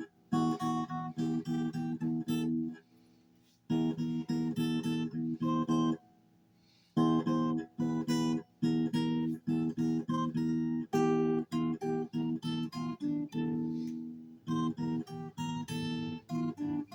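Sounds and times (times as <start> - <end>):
acoustic guitar strumming: 0.0 - 3.0, 3.7 - 6.0, 7.0 - 16.9.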